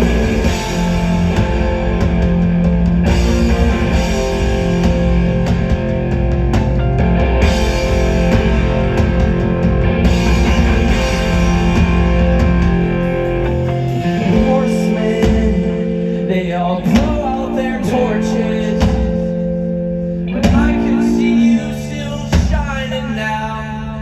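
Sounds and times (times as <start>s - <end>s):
electric guitars ringing: 0.0s - 23.9s
bass: 0.0s - 24.0s
drums: 0.0s - 24.0s.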